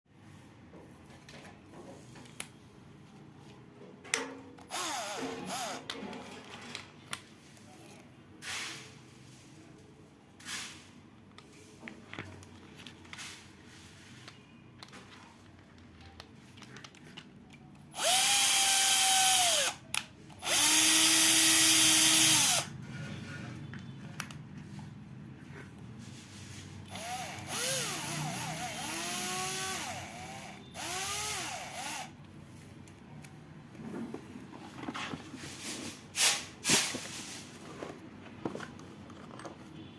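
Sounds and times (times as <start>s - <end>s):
electric drill motor whining: 4.7s - 5.9s, 17.9s - 19.8s, 20.4s - 22.7s, 26.9s - 32.2s.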